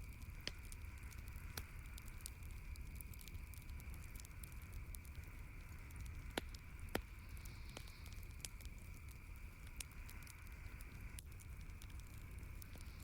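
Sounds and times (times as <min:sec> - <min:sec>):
campfire crackling: 0:00.0 - 0:13.0
low rumble and hiss: 0:00.0 - 0:13.0.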